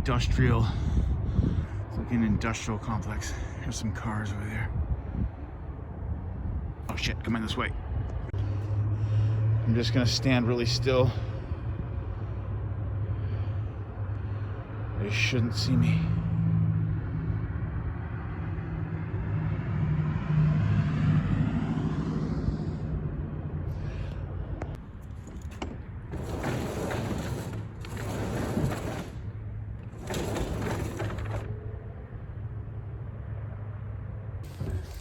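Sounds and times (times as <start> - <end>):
car passing by: 8.3 - 24.8
rough rustling noises: 25.0 - 31.5.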